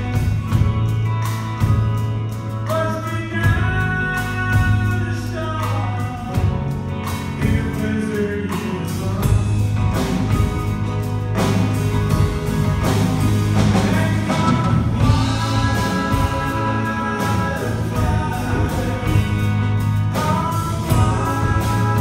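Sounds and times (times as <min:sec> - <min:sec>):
live band playing: 0:00.0 - 0:22.0
person singing: 0:02.6 - 0:10.2, 0:13.6 - 0:22.0.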